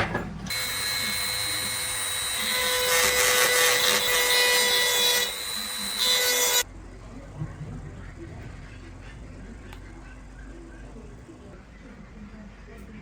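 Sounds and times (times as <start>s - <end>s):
power tool motor whine: 0.5s - 6.6s.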